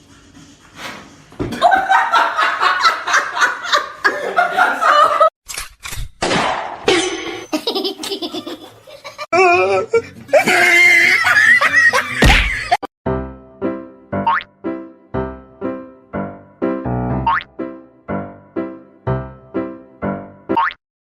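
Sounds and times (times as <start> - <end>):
people laughing hard: 1.5 - 5.3, 7.5 - 12.8.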